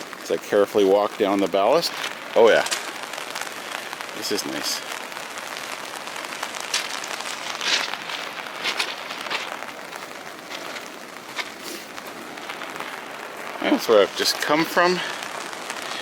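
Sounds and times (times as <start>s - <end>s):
steady hiss: 0.0s - 16.0s
footsteps crunching on rock ballast: 0.5s - 3.0s, 6.6s - 15.3s.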